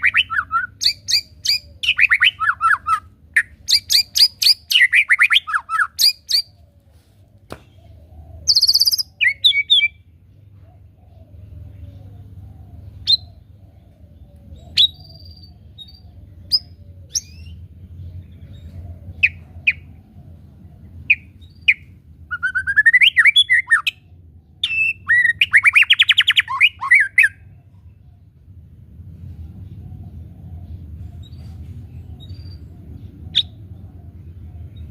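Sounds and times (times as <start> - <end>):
bird chirps: 0.0 - 6.6, 7.5 - 28.5, 29.2 - 34.9
bird song with trilled notes: 0.0 - 6.6, 8.5 - 10.3, 14.4 - 19.9, 21.1 - 28.0.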